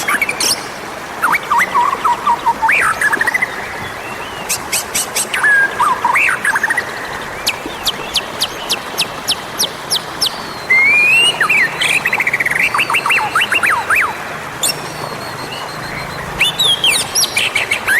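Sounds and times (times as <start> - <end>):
bird singing whistled phrases: 9.9 - 17.9.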